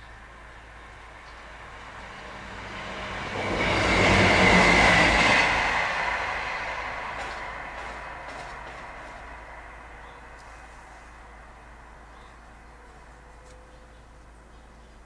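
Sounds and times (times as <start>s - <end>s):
passenger train passing: 0.1s - 13.3s.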